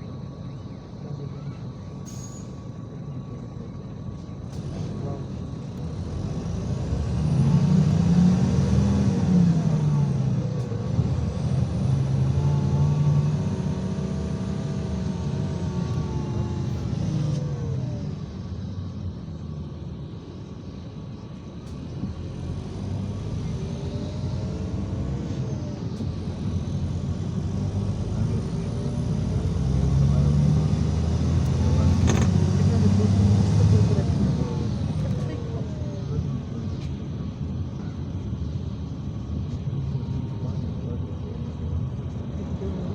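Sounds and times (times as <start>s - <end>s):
bus diesel engine droning: 0.0s - 42.9s
drivetrain whine: 0.0s - 42.9s.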